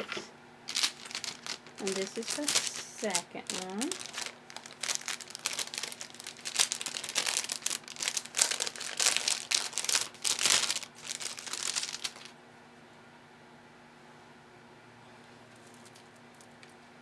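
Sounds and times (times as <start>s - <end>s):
wrapping rustling and crumpling: 0.0s - 12.3s.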